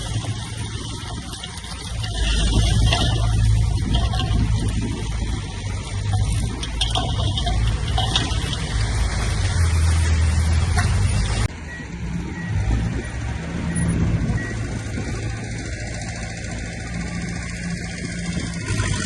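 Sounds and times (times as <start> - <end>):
diesel engine of heavy machinery: 0.0 - 19.0
scraping and rumbling: 0.0 - 19.0.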